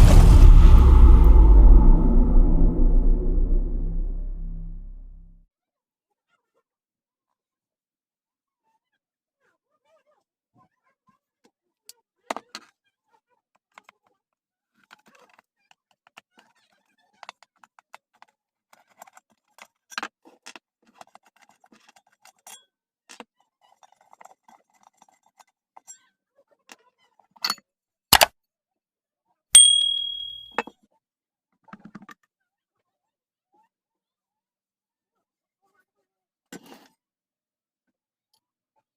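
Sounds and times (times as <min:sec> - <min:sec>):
metal part struck and ringing: 0:29.6 - 0:30.6.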